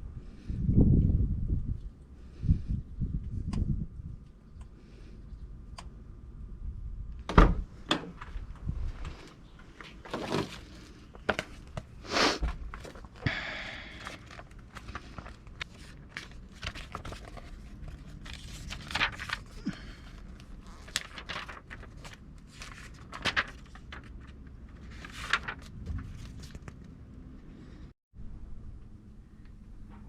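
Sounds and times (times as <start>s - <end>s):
rustling and crinkling: 8.1s - 27.0s.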